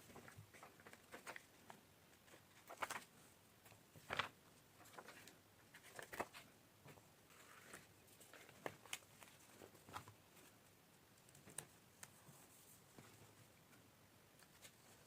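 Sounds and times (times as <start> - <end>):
paper taps and rustles: 0.0 - 10.2.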